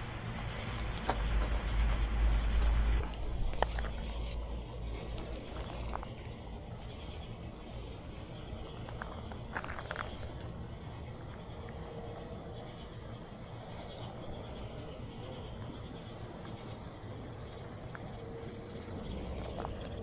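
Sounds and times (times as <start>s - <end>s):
crickets and night insects chirping: 0.0s - 20.0s
faint clicks: 3.0s - 6.3s, 8.7s - 10.7s, 13.4s - 15.8s.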